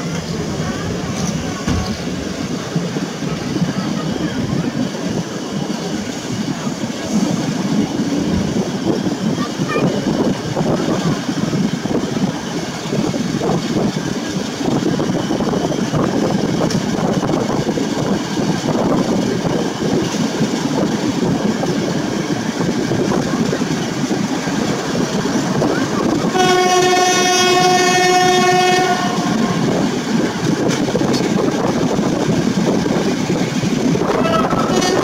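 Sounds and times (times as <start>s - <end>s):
diesel locomotive engine: 0.0s - 35.0s
train wheels rumbling: 0.0s - 35.0s
locomotive horn: 26.2s - 29.7s, 34.1s - 35.0s.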